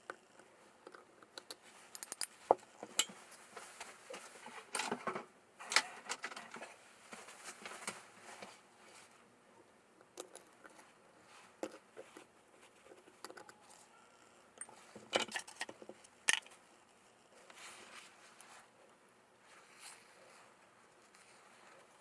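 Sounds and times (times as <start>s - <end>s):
small parts clicking and rattling: 0.0s - 3.2s, 10.0s - 10.8s, 14.6s - 16.6s.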